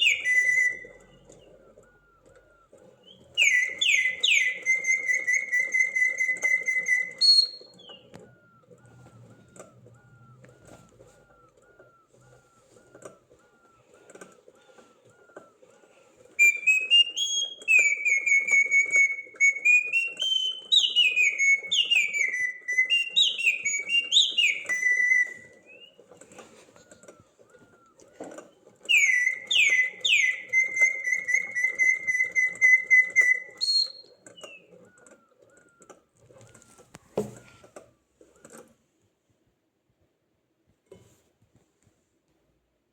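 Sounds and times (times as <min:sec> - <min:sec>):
bird whistling song: 0:00.0 - 0:15.6, 0:16.4 - 0:26.1, 0:26.8 - 0:35.9.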